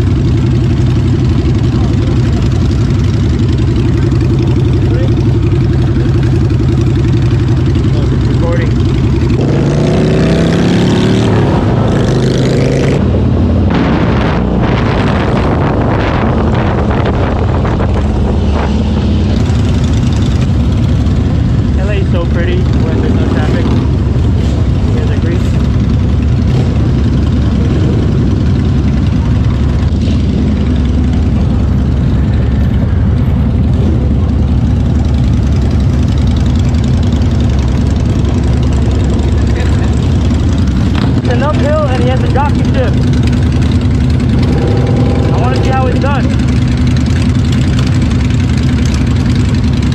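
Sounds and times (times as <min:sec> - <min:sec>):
motorcycle engine accelerating: 0:00.0 - 0:49.9
wind rushing over microphone: 0:11.2 - 0:19.6.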